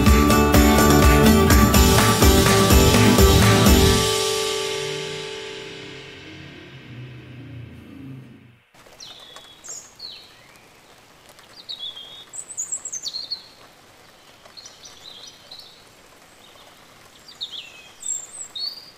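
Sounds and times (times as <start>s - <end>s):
background music: 0.0s - 8.2s
faint outdoor hiss: 2.0s - 18.9s
birds chirping: 5.9s - 18.9s.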